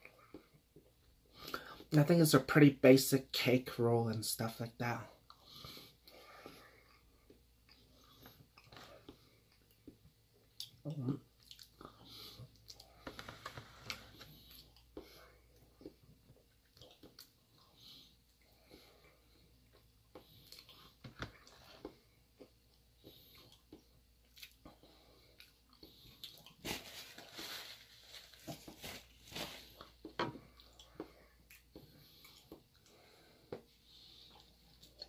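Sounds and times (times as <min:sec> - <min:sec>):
chewing cake: 0:05.2 - 0:26.6, 0:29.8 - 0:35.0.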